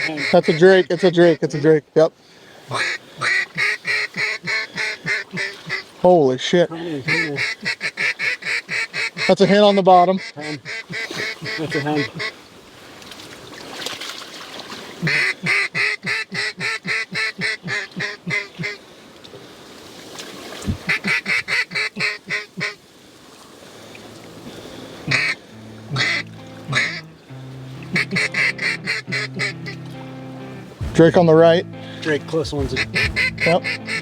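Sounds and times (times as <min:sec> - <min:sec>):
duck quacking: 0:00.0 - 0:01.7, 0:02.7 - 0:05.9, 0:06.9 - 0:12.4, 0:15.0 - 0:18.8, 0:20.8 - 0:22.8, 0:25.0 - 0:34.0
background music: 0:25.1 - 0:34.0.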